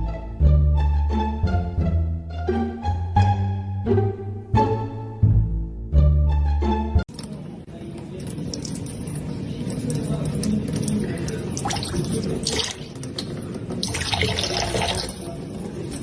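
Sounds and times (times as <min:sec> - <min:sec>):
water running and splashing: 0:07.1 - 0:15.4.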